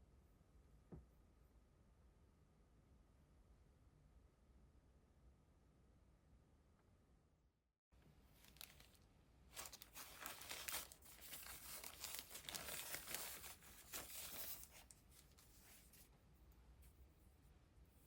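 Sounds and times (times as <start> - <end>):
crinkling and rustling: 8.0 - 16.2.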